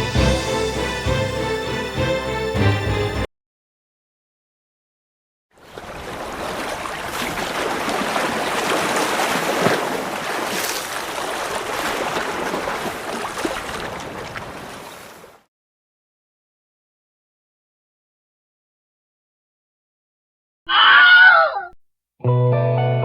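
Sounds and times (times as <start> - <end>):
water rushing: 5.6 - 15.5.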